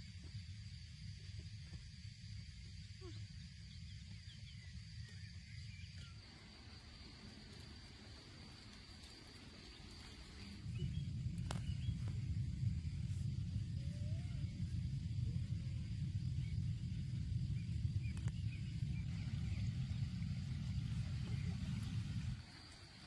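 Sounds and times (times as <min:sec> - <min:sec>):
low rumble: 0:09.6 - 0:23.0.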